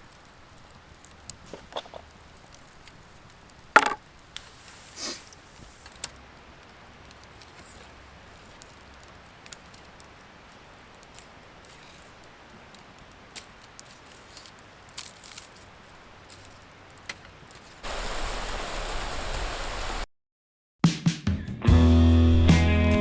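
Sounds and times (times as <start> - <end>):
loud steady hiss: 0.0 - 7.0, 17.8 - 20.1
campfire crackling: 0.0 - 20.1.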